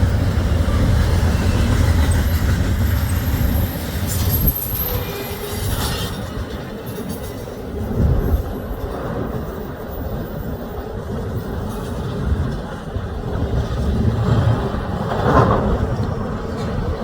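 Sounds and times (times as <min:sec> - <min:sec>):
rail cars rumbling over track: 0:00.0 - 0:17.0
high wheel squeal: 0:00.4 - 0:07.2.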